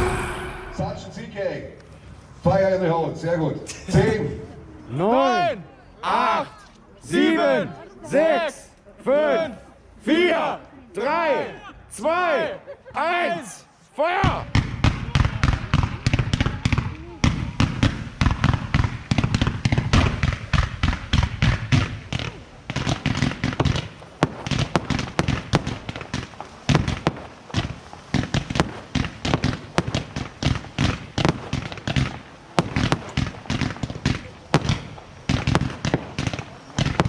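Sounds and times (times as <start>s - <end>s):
fireworks bangs: 0.0s - 1.4s, 14.2s - 37.0s.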